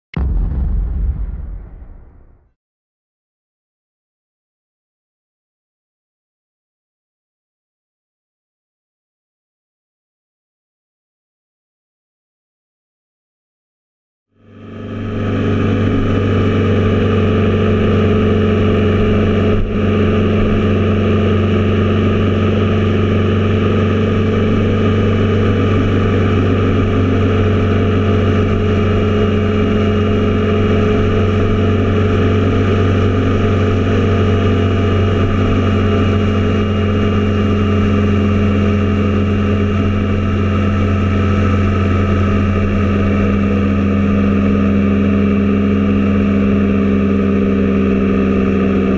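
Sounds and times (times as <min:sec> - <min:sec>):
motorcycle engine running steadily: 0:14.4 - 0:48.9.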